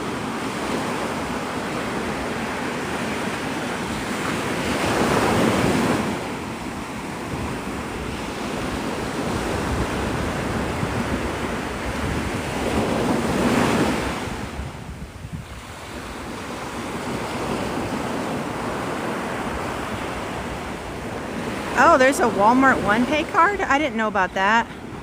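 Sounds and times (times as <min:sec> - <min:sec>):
wind on microphone: 0:00.0 - 0:23.8
surf breaking on beach: 0:00.0 - 0:25.0.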